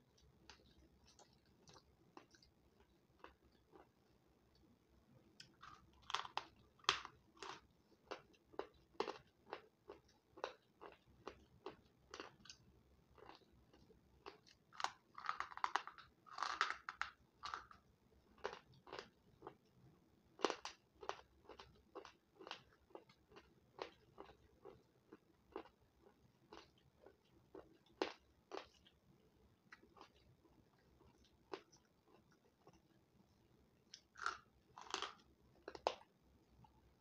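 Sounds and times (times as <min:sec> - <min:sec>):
person crunching food: 0:05.4 - 0:12.6, 0:13.2 - 0:17.8, 0:18.4 - 0:19.6, 0:20.4 - 0:29.0, 0:29.7 - 0:32.9, 0:33.9 - 0:36.1.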